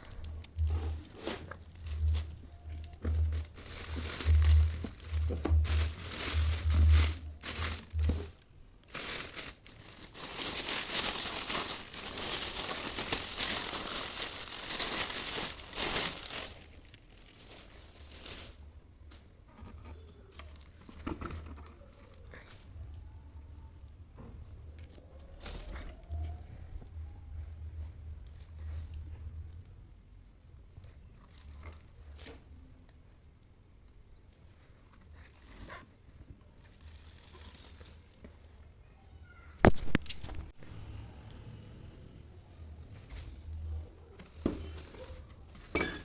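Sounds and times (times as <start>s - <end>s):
packaging crinkling and tearing: 0.0s - 18.6s, 36.6s - 38.5s.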